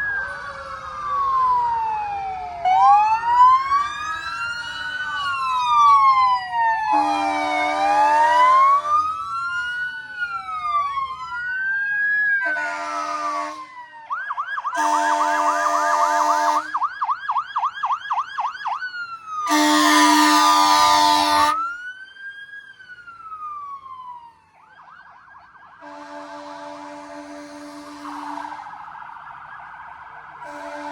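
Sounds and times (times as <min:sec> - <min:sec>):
emergency vehicle sirens: 0:00.0 - 0:30.9
horn blasts: 0:06.9 - 0:07.8, 0:12.4 - 0:13.8, 0:14.8 - 0:16.8, 0:19.5 - 0:21.6, 0:25.8 - 0:28.8, 0:30.4 - 0:30.9.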